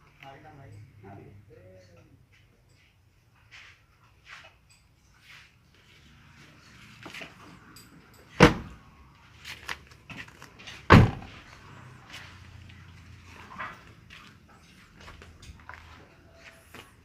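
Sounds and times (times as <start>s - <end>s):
car door slamming: 8.4s - 8.8s, 10.9s - 11.3s.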